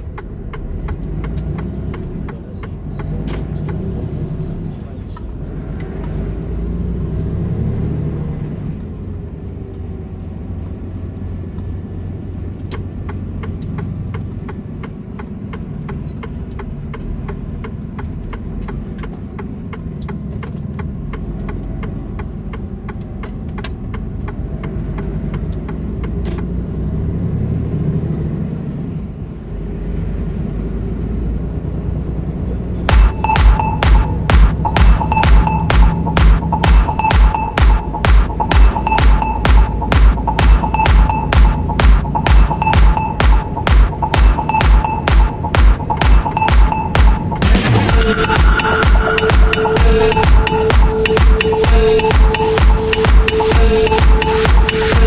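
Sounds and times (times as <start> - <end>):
regular ticking: 0.0 - 4.0, 9.8 - 26.5, 32.9 - 55.0
truck engine and road rumble: 0.0 - 32.9.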